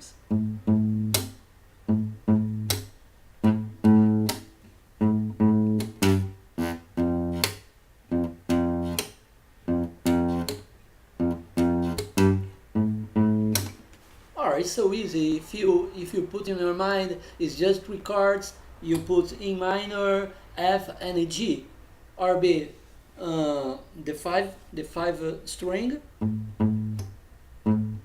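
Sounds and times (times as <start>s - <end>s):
acoustic guitar strumming: 0.0s - 10.6s, 11.2s - 13.8s, 26.2s - 28.0s.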